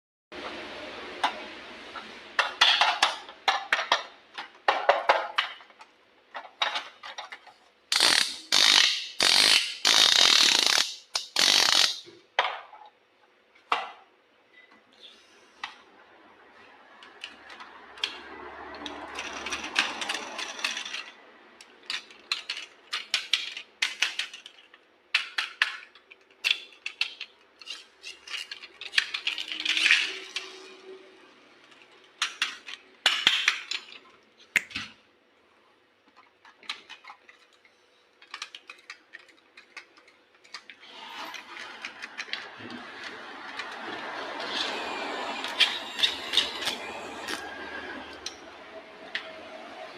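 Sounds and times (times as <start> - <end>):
plastic and metal toys clicking: 2.4 - 12.1, 17.0 - 30.8, 31.5 - 35.0, 36.2 - 40.8, 41.6 - 44.6.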